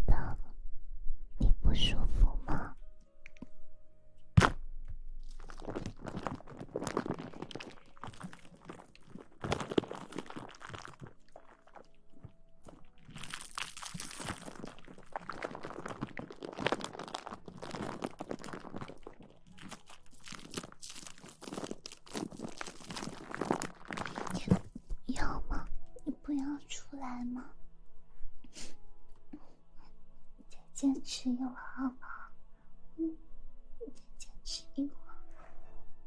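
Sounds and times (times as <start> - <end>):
crinkling and scratching: 5.2 - 25.0.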